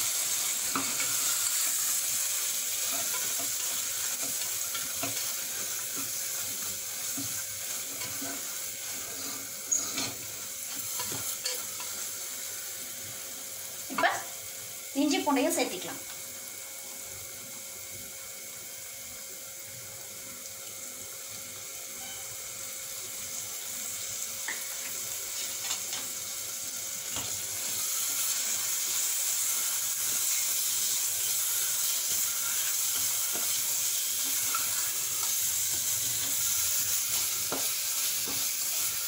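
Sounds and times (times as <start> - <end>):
masala sizzling in oil: 0.0 - 39.0.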